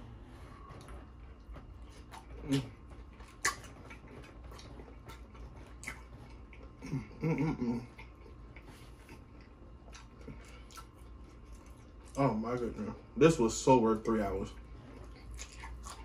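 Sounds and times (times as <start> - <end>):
closed-mouth hum: 0.0 - 16.0
person chewing: 0.7 - 12.3, 14.6 - 16.0
lip smacks: 1.8 - 6.8, 7.9 - 12.2, 15.0 - 16.0.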